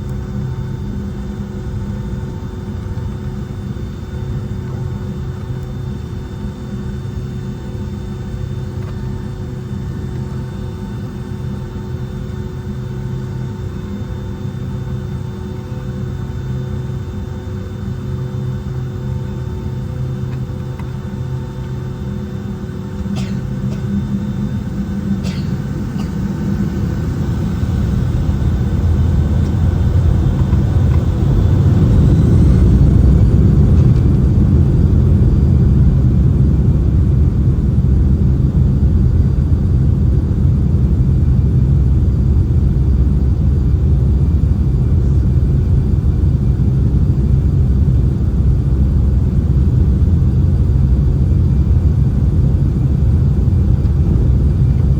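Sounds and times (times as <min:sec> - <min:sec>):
jet engines spooling up: 0:22.9 - 0:36.3.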